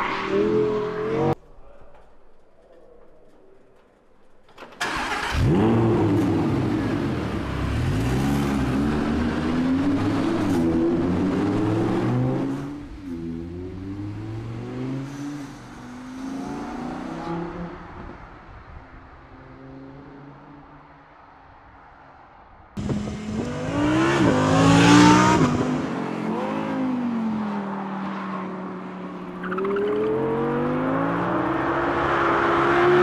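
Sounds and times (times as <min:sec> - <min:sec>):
car engine starting and revving: 0:04.8 - 0:18.0, 0:22.8 - 0:27.6, 0:29.3 - 0:33.0.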